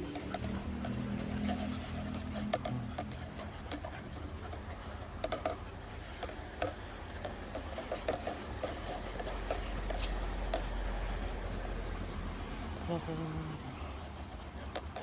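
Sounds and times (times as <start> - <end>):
dog claws clicking: 0.0 - 11.0
footsteps walking: 6.3 - 11.1.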